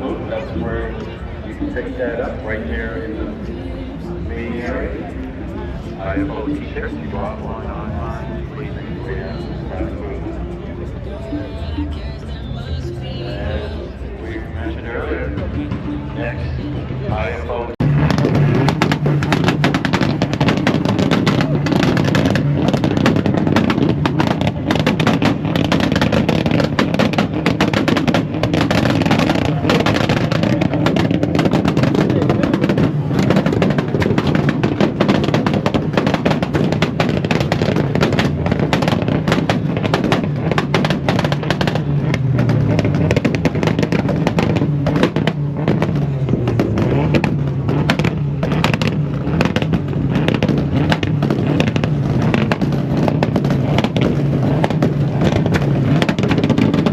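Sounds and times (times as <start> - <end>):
car engine running: 0.0 - 56.9
exhaust pops and crackles: 17.6 - 56.9.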